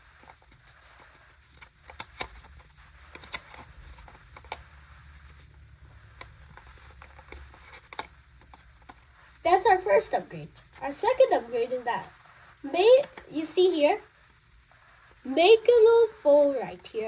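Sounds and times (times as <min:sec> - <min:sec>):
low steady hum: 0:00.0 - 0:17.0
paper crinkling and creasing: 0:00.2 - 0:05.5, 0:06.2 - 0:12.2.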